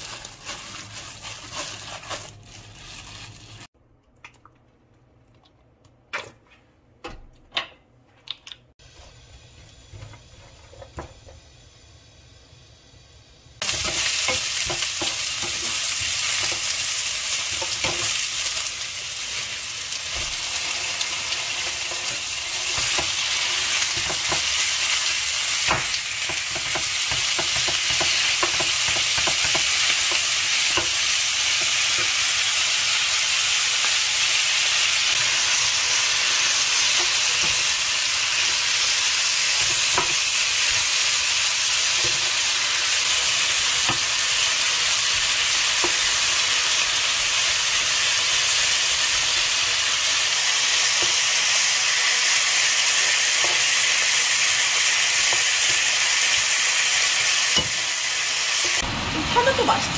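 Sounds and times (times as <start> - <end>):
food sizzling in a frying pan: 0.0 - 3.7, 8.8 - 59.9
spatula tapping and scraping pan: 13.7 - 16.7, 25.7 - 32.2.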